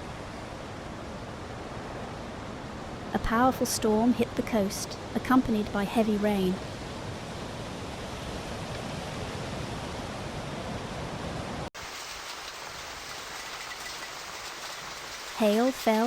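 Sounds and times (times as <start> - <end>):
heavy rain pouring: 11.8 - 16.0.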